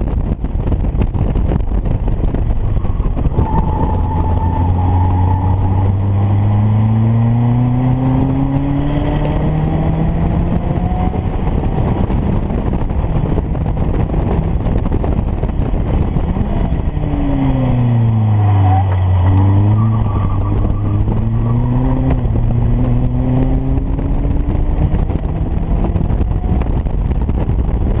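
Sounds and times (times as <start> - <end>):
wind and road noise: 0.0 - 28.0
race car engine accelerating: 3.2 - 12.6, 15.4 - 26.9.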